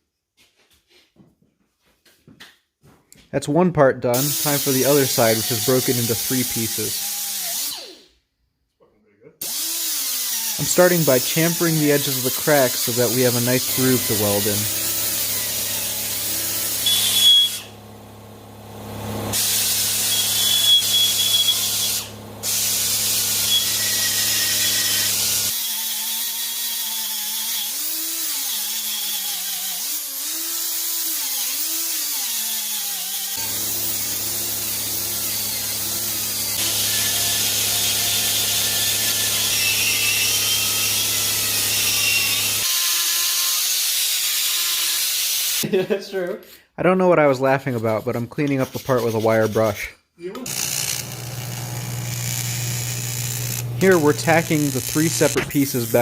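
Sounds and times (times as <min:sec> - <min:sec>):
power grinder cutting metal: 0:04.2 - 0:08.1, 0:09.4 - 0:17.9, 0:18.8 - 0:45.6, 0:50.4 - 0:56.0.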